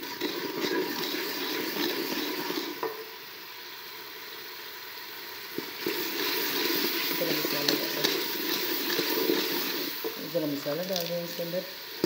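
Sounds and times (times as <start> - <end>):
onions sizzling in hot oil: 0.0 - 12.0
spoon stirring in a pot: 5.6 - 11.2.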